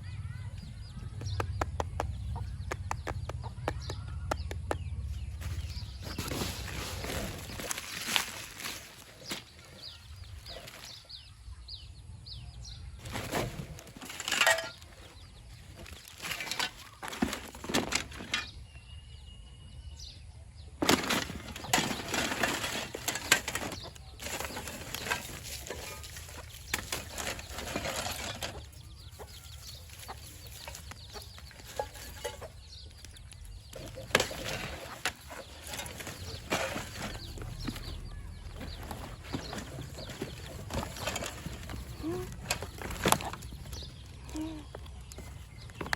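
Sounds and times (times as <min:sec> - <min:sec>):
small objects clicking and scraping: 0:05.4 - 0:11.1, 0:13.0 - 0:18.6, 0:20.8 - 0:45.9.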